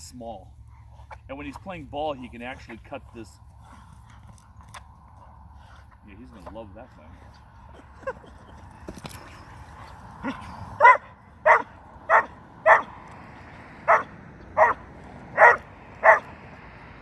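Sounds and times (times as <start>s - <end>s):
puppy barking: 10.2s - 13.0s, 13.8s - 16.4s.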